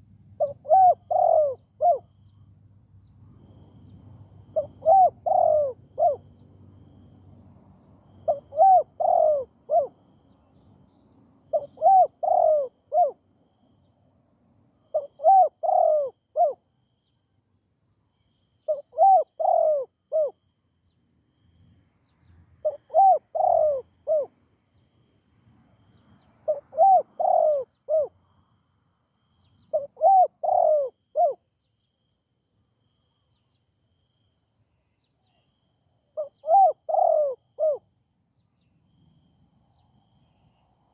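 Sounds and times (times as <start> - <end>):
dove cooing: 0.0 - 2.1, 4.4 - 6.4, 8.2 - 10.0, 11.5 - 13.2, 14.9 - 16.6, 18.7 - 20.4, 22.6 - 24.4, 26.4 - 28.2, 29.6 - 31.4, 36.2 - 37.9.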